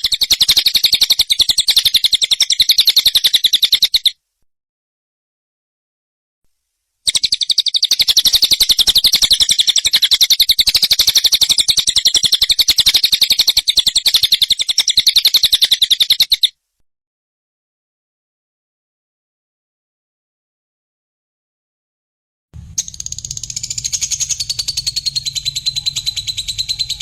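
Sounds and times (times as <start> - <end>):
bird chattering call: 7.1 - 16.5, 22.8 - 27.0.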